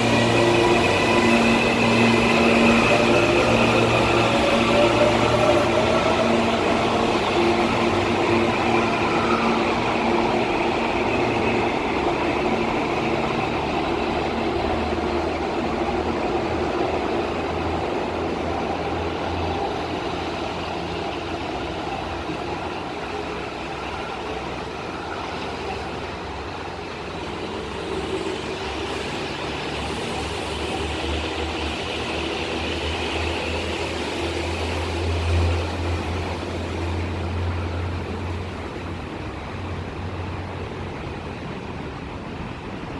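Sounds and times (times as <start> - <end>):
electric train motors whining: 0.0 - 16.3.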